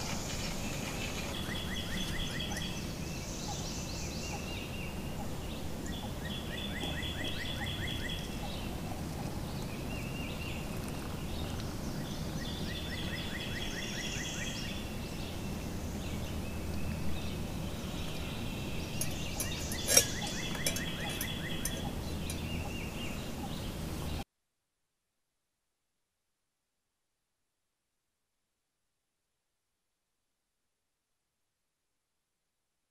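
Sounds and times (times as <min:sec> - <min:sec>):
low outdoor background: 0:00.0 - 0:32.7
metal pot clink: 0:18.9 - 0:22.7
high rapid trilling calls: 0:19.0 - 0:22.7.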